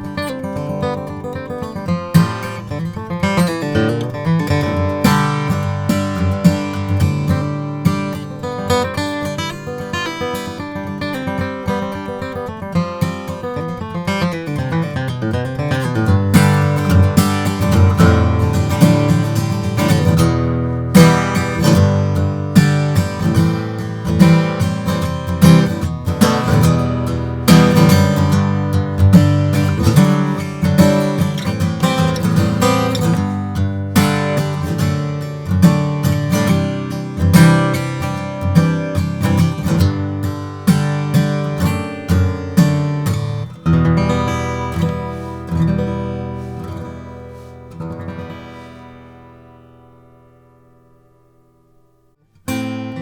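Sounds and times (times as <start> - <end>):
acoustic guitar playing: 0.0 - 53.0.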